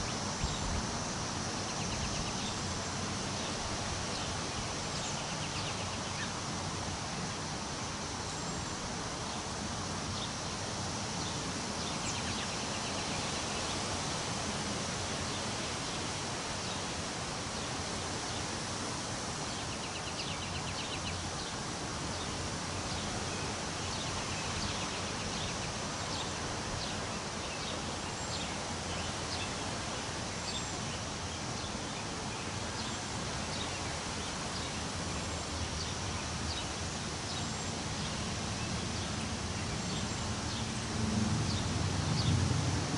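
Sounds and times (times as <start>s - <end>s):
wind rustling tree leaves: 0.0s - 42.9s
small birds chirping: 1.5s - 6.4s, 10.1s - 13.9s, 19.4s - 40.8s.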